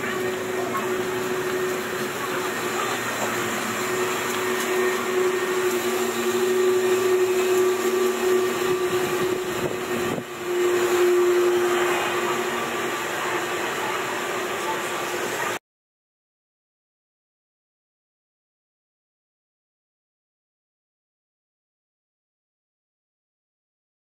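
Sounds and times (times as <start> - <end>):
machine droning hum: 0.0 - 15.6.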